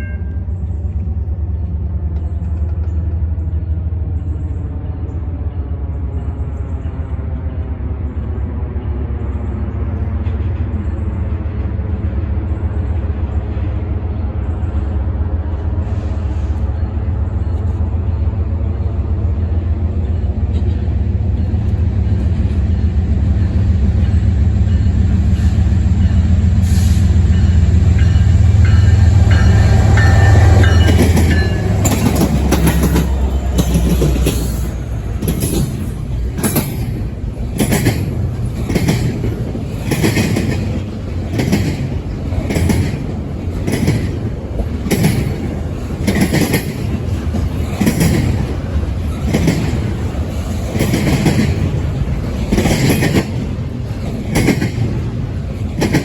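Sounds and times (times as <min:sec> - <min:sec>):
locomotive engine drone: 0:00.0 - 0:56.0
train wheels clicking over rail joints: 0:20.4 - 0:56.0.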